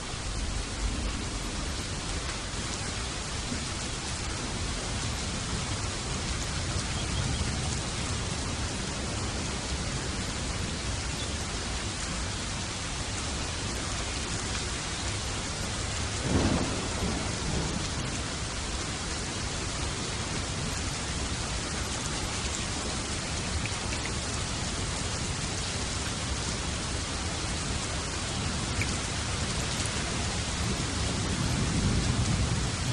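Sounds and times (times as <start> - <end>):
steady rain: 0.0 - 32.9
thunder rumbling: 16.0 - 18.9, 29.3 - 32.9
sharp thunderclap: 16.2 - 18.1.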